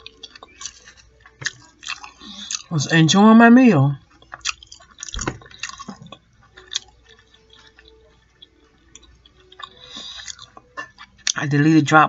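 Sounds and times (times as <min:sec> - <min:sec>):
wet chewing mouth sounds: 0:00.0 - 0:02.7, 0:04.0 - 0:11.5.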